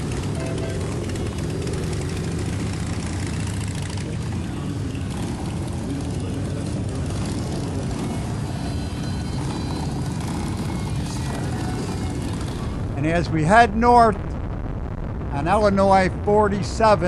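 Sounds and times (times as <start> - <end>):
motorcycle engines running: 0.0 - 13.6
wind noise: 12.1 - 17.0.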